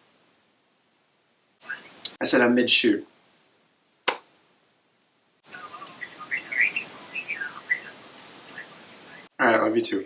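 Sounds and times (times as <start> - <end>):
steady hiss: 0.0 - 10.0
birds chirping: 1.6 - 2.2, 5.4 - 9.4.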